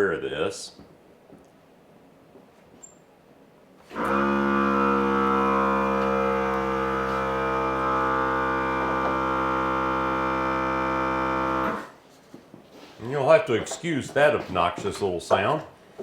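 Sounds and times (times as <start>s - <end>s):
air compressor motor humming: 3.8s - 12.0s.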